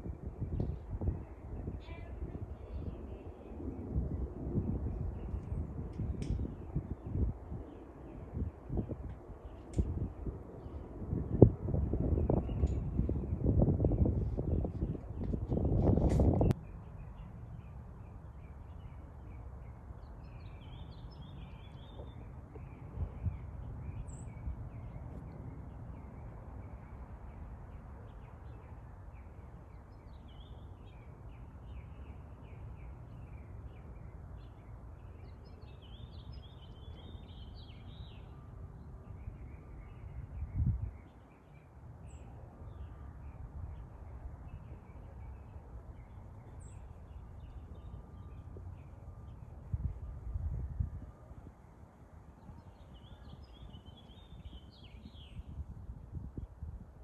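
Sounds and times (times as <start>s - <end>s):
steady low rumble: 0.0s - 28.5s, 42.1s - 57.0s.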